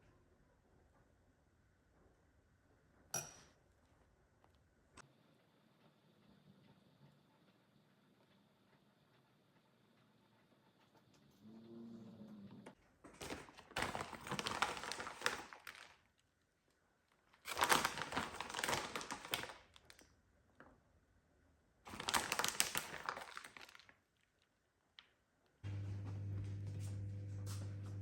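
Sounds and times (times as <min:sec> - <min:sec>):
crinkling crackling noise: 0:13.1 - 0:20.7, 0:21.9 - 0:26.2.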